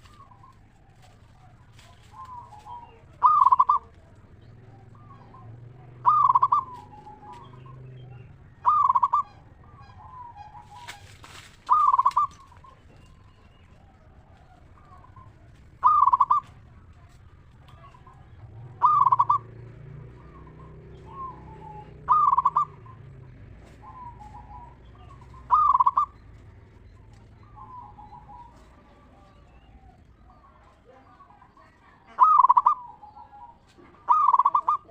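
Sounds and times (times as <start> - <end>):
rustling: 0.0 - 3.2, 10.5 - 15.8
dove cooing: 0.0 - 34.9.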